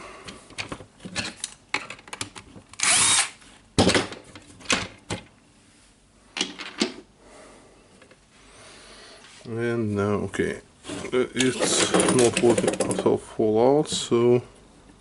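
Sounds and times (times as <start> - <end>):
plastic parts clicking and knocking: 0.5 - 2.8, 3.8 - 5.3, 6.4 - 7.0, 11.4 - 13.1
power screwdriver bursts: 2.8 - 3.4.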